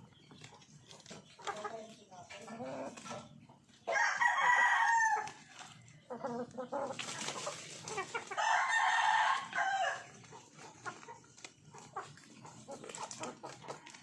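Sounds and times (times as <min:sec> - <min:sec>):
chickens clucking: 0:00.0 - 0:14.0
rooster crowing: 0:03.9 - 0:05.3, 0:08.4 - 0:10.0.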